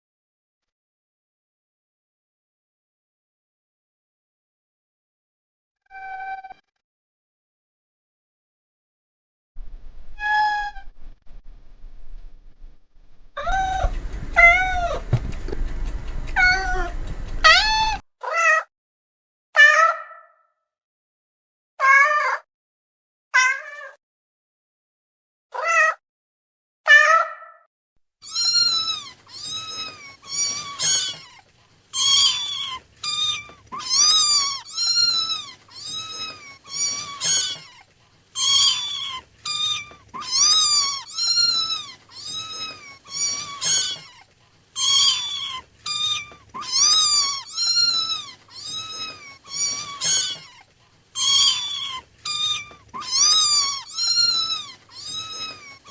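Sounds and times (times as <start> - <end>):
cat meowing: 10.2 - 10.9, 13.4 - 18.7, 23.4 - 24.0, 25.6 - 26.0, 28.2 - 55.9.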